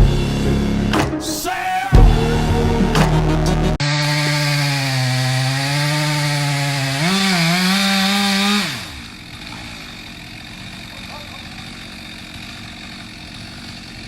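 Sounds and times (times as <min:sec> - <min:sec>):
chainsaw cutting wood: 0:03.8 - 0:14.0.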